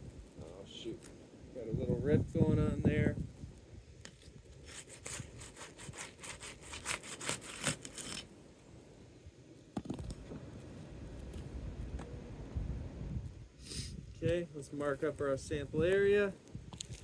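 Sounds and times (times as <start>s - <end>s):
shingle tearing: 4.1s - 8.3s.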